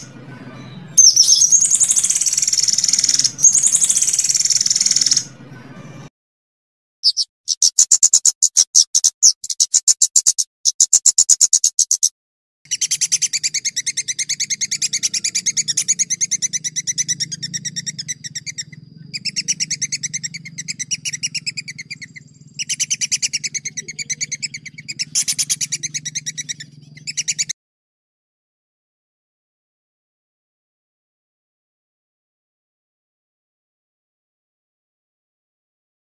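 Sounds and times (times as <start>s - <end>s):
songbird trilling: 0.0s - 5.4s, 7.0s - 12.1s, 12.7s - 27.5s
faint low hum: 12.8s - 27.5s.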